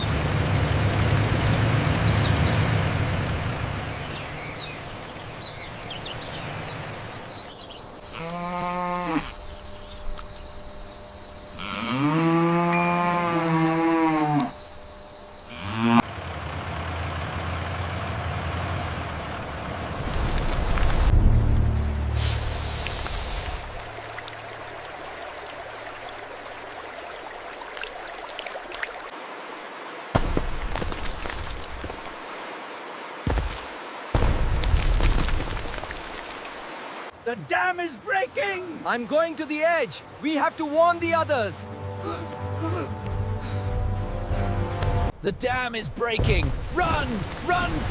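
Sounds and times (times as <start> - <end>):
water running like a stream: 0.0 - 15.7, 18.8 - 44.9, 46.0 - 47.9
small birds chirping: 3.6 - 11.9
cow mooing: 8.1 - 9.4, 11.6 - 14.6, 15.5 - 16.1
faint ticks: 8.2 - 11.9
low rumble: 19.4 - 23.9.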